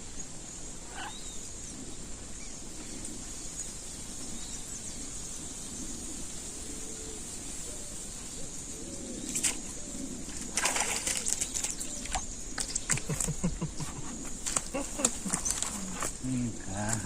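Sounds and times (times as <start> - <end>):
dove cooing: 5.5 - 17.0.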